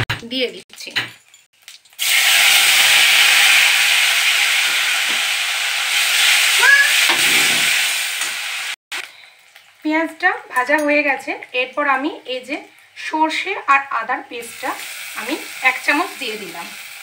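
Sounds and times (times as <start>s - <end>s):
paste sizzling in hot oil: 1.6s - 9.9s, 14.4s - 17.0s.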